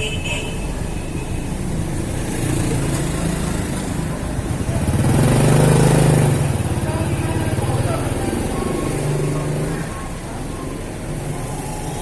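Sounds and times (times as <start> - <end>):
hum of traffic: 0.0 - 12.0
motorcycle engine running: 2.3 - 10.3.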